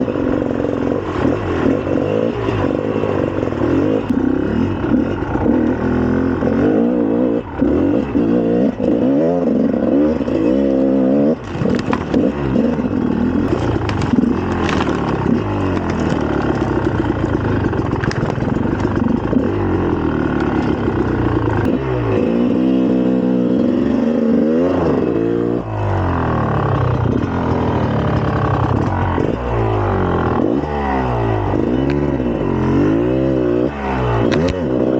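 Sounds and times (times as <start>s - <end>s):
dirt bike engine revving: 0.0s - 34.9s.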